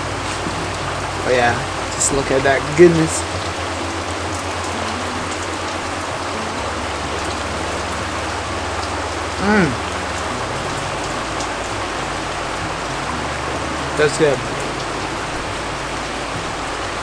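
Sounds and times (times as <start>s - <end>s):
steady rain falling: 0.0s - 17.0s
person's falling vocal sound: 9.4s - 10.0s.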